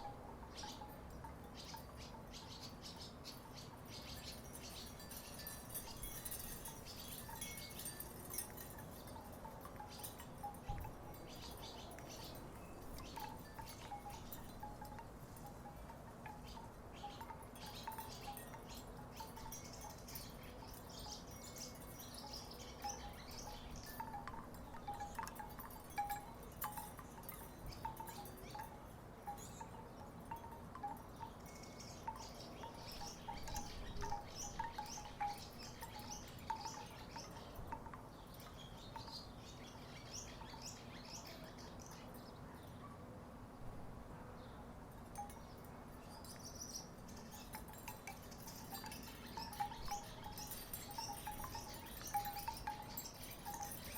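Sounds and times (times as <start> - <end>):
wooden wind chimes knocking: 4.4 - 39.2, 46.2 - 53.9.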